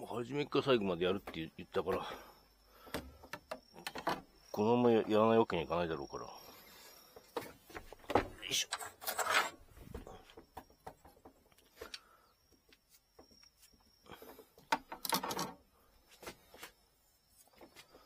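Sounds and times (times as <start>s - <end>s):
objects handled on work surface: 7.2s - 12.0s.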